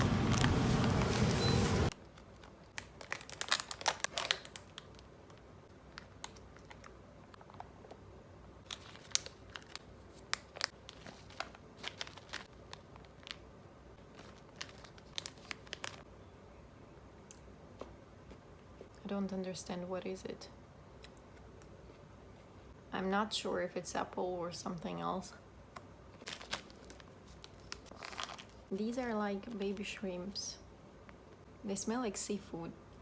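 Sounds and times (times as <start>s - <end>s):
plastic packaging crinkling: 0.0s - 8.0s, 8.6s - 16.0s, 26.2s - 28.7s.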